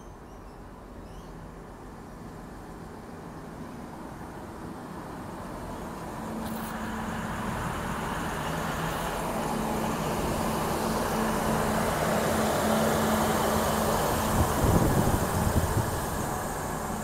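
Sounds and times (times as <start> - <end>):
low engine hum: 0.0 - 17.0
train rumble approaching: 0.1 - 17.0.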